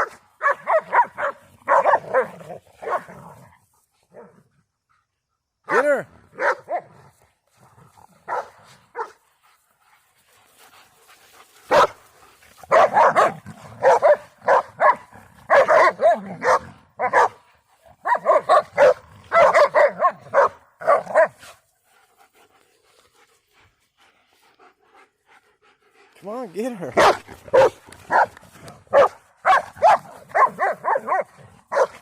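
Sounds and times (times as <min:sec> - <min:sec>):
dogs barking and yelping: 0:00.0 - 0:03.4, 0:08.2 - 0:09.2, 0:10.8 - 0:21.6, 0:24.4 - 0:32.0.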